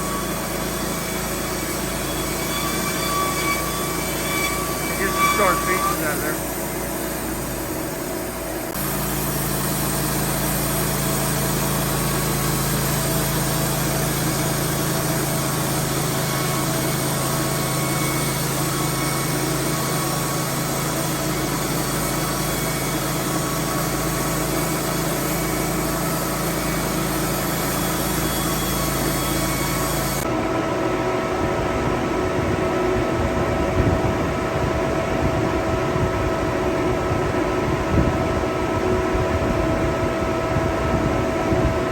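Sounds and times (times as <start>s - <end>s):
band blade sawing wood: 0.0s - 7.0s
sawmill engine running: 0.0s - 41.9s.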